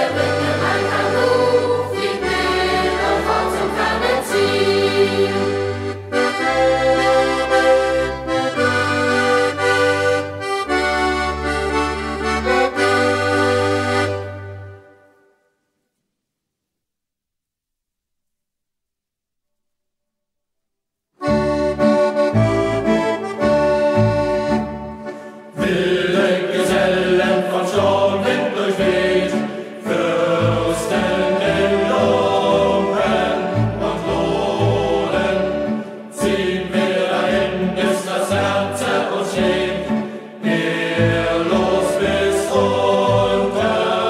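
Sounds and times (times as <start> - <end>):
group singing together: 0.0 - 8.0, 25.5 - 44.0.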